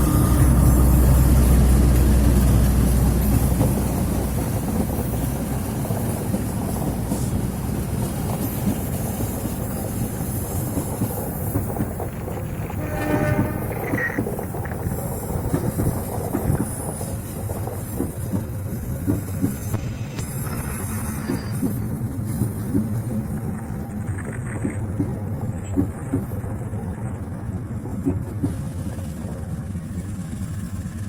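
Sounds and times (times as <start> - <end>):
locomotive rumble: 0.0 - 31.0
train cars rolling on rails: 0.0 - 31.0
short pitched tone: 12.8 - 14.3.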